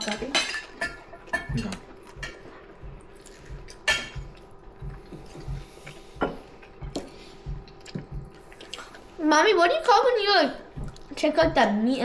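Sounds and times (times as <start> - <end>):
cutlery and dishes clinking: 0.0 - 2.4, 3.8 - 4.3.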